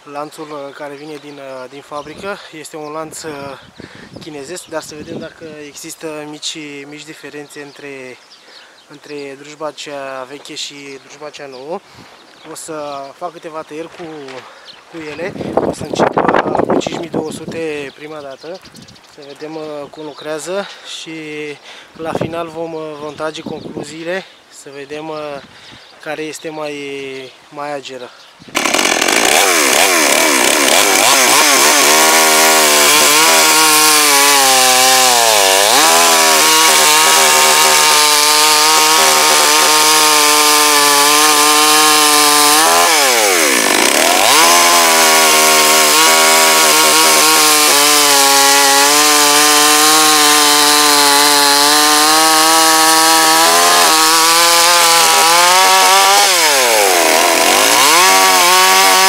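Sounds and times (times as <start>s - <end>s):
chainsaw cutting wood: 28.5s - 59.0s.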